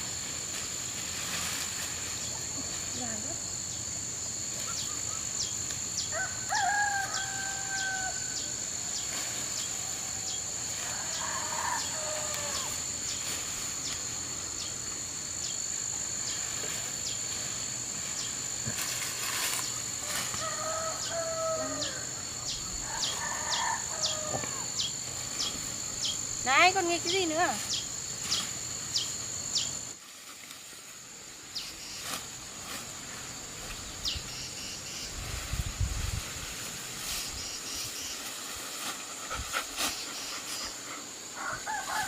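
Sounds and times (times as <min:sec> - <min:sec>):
insects chirping drone: 0:00.0 - 0:42.0
roosters crowing: 0:06.0 - 0:13.2, 0:19.7 - 0:25.1, 0:40.6 - 0:42.0.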